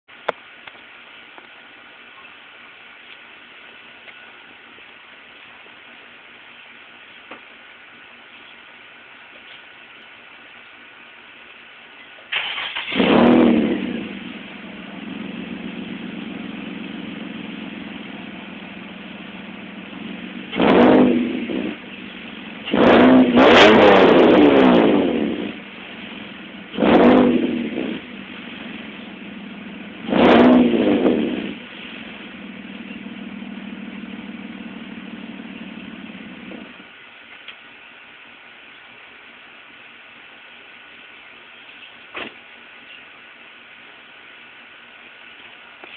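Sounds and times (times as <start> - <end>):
car engine starting and revving: 12.3 - 36.8.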